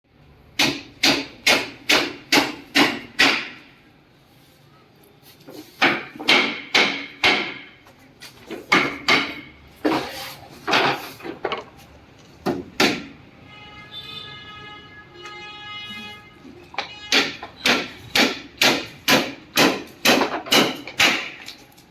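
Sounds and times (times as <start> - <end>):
hammer striking wood: 0.6 - 3.7, 5.8 - 7.8, 8.5 - 9.6, 12.4 - 13.2, 16.8 - 21.5.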